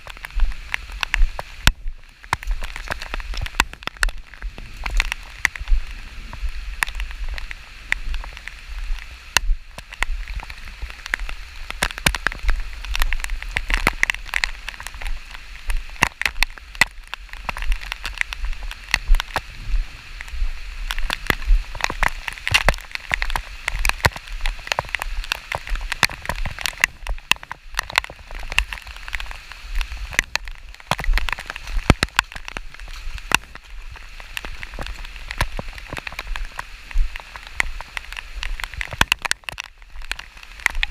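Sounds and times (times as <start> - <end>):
raindrops tapping: 0.0 - 40.9
steady rain hiss: 0.0 - 40.9
low rumble: 4.2 - 8.2, 19.2 - 21.8.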